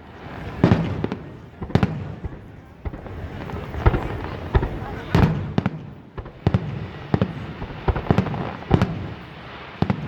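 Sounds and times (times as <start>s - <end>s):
fireworks bangs and booms: 0.0s - 10.0s.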